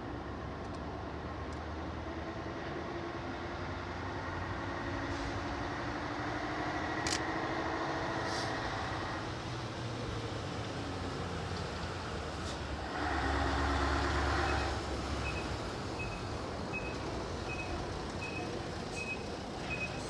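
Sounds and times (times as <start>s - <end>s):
diesel locomotive engine running: 4.2s - 20.0s.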